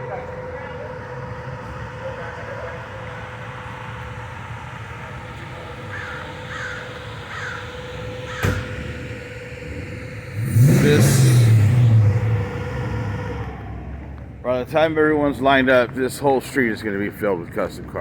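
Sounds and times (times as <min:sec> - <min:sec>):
car driving by: 0:00.0 - 0:18.0
crow cawing: 0:05.8 - 0:08.6
sharp knock: 0:08.4 - 0:09.0.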